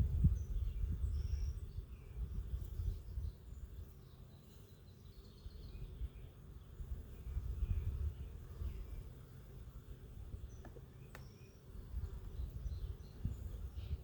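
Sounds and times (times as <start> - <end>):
low rumble on microphone: 0.0 - 3.4, 6.8 - 9.0
faint bird chirps: 0.1 - 9.3, 10.3 - 14.0.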